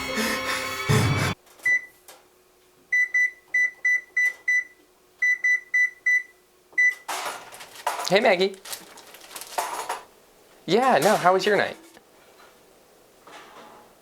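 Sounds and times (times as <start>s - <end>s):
microwave oven beeping: 0.0s - 2.0s, 2.9s - 7.2s.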